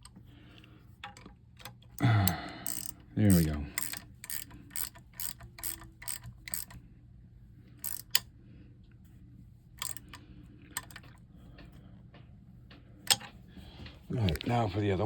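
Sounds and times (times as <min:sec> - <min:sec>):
ratchet wrench clicking: 0:02.6 - 0:06.8, 0:07.8 - 0:08.2, 0:09.8 - 0:10.2, 0:10.8 - 0:11.1, 0:13.1 - 0:13.3.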